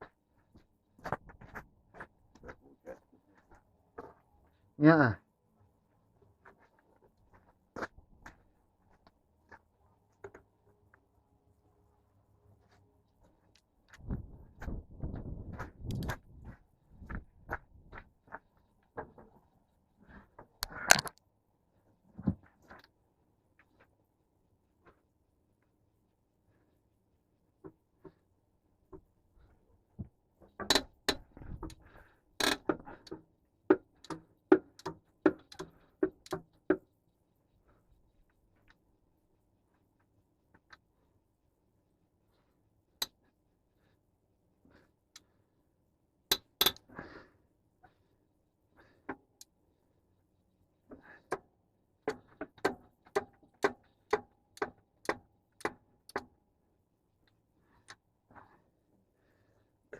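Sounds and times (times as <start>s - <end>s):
sharp knocks and clicks: 30.0s - 36.9s, 50.9s - 56.4s.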